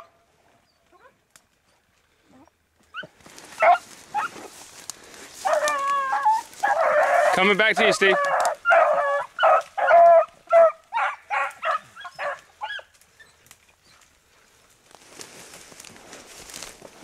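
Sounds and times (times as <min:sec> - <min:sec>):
dogs baying: 0:02.4 - 0:04.5, 0:05.4 - 0:14.0
rustling in brush: 0:03.1 - 0:10.4, 0:11.6 - 0:17.0.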